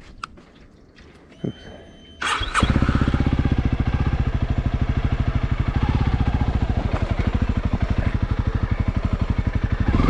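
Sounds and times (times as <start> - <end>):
motorcycle engine idling: 2.2 - 10.0.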